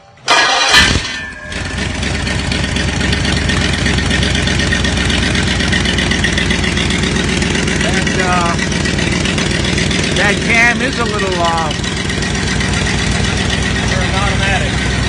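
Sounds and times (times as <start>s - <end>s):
engine starting and loping idle: 0.3s - 15.0s.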